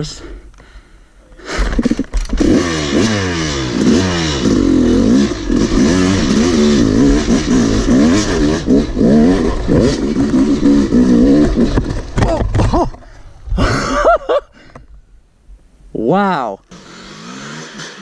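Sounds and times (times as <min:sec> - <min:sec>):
dirt bike engine revving: 0:01.4 - 0:12.9, 0:16.7 - 0:18.0.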